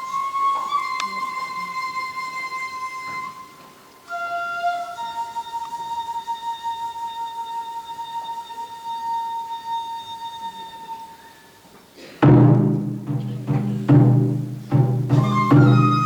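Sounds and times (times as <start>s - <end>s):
heavy ringing drum strikes: 12.2s - 16.0s
held flute note: 15.1s - 16.0s.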